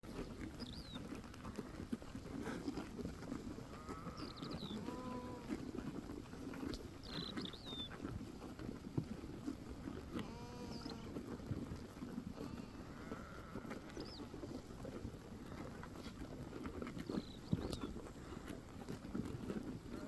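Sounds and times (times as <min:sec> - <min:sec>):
small birds chirping: 0:00.1 - 0:01.2, 0:03.8 - 0:05.8, 0:06.6 - 0:08.1, 0:10.2 - 0:11.1, 0:12.4 - 0:14.6, 0:16.9 - 0:18.4
sheep bleating: 0:03.7 - 0:05.6, 0:10.1 - 0:11.2, 0:12.4 - 0:13.9.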